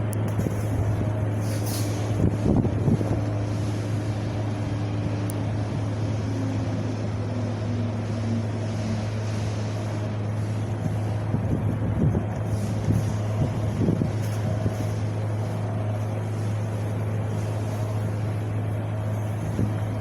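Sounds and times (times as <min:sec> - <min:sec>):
wind blowing: 0:00.3 - 0:06.3, 0:10.2 - 0:20.0.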